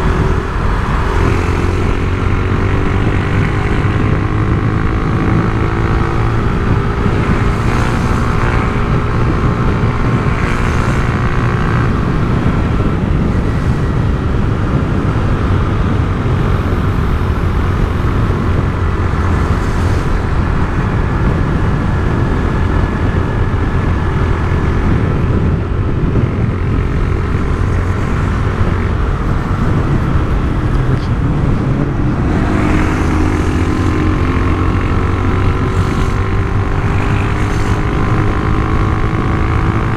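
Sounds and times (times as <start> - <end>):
motorcycle engine drone: 0.0 - 39.9.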